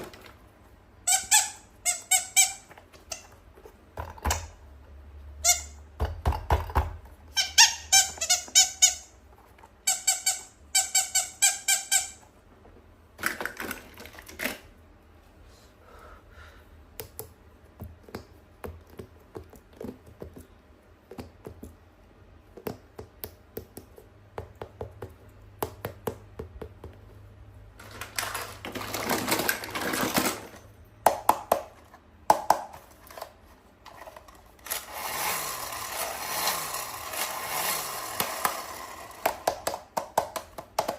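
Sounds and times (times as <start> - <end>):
high-pitched toy squeaks: 1.0 - 3.4, 5.4 - 5.8, 7.3 - 9.2, 9.8 - 12.3
clicks and taps: 16.9 - 21.8, 22.5 - 27.2, 31.0 - 32.9, 39.2 - 40.9
packaging rustling: 27.8 - 30.6.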